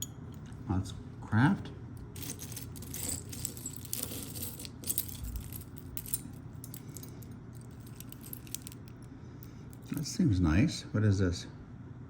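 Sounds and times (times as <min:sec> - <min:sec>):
metal jewelry clinking: 0:00.0 - 0:00.7, 0:02.0 - 0:10.1.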